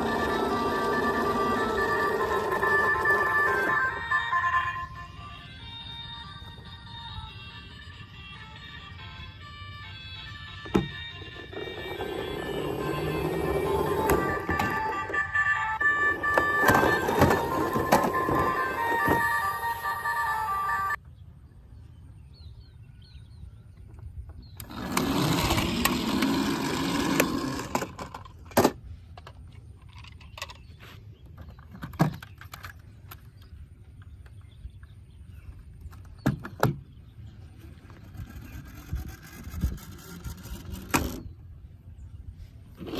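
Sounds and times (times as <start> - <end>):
toy vehicle rolling rumble: 0.0 - 6.8, 10.6 - 21.0, 24.6 - 30.7, 37.5 - 41.3.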